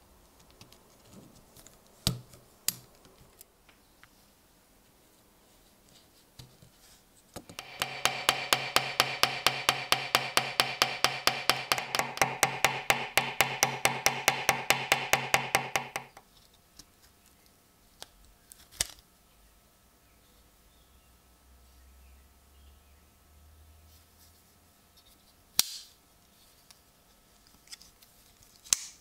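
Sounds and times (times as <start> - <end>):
electric power tool humming: 7.5 - 16.1
regular ticking: 7.5 - 16.2.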